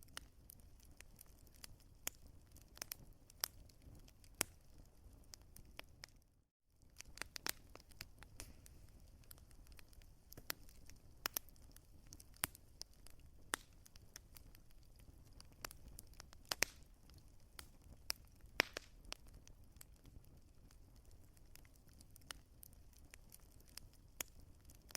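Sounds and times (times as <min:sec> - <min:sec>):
wood fire crackling: 0:00.0 - 0:24.9
low hiss of flames: 0:06.9 - 0:19.2.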